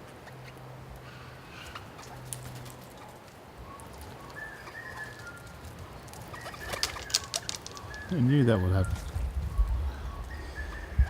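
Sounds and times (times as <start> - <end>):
bird chirps and whistled notes: 3.6 - 11.0.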